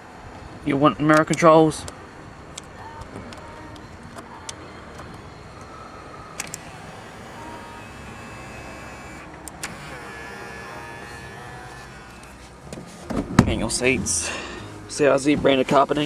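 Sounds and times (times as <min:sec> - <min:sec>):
door mirror motors whirring: 0:00.0 - 0:16.0
switch clicking: 0:01.0 - 0:05.7, 0:06.3 - 0:10.0.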